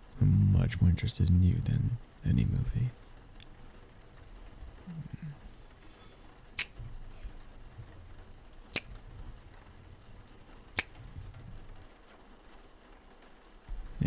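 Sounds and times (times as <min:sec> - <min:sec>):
wet kissing lip smacks: 0:01.4 - 0:11.9, 0:13.7 - 0:14.0.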